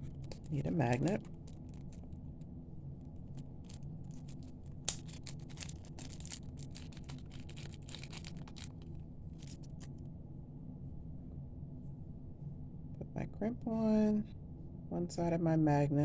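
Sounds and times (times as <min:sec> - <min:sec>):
small parts clicking and scratching: 0:00.0 - 0:09.9
steady low hum: 0:00.0 - 0:16.0.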